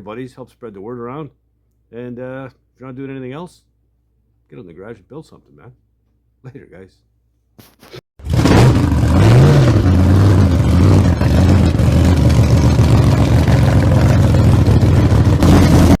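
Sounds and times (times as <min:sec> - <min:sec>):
engine running and revving: 0:08.2 - 0:16.0.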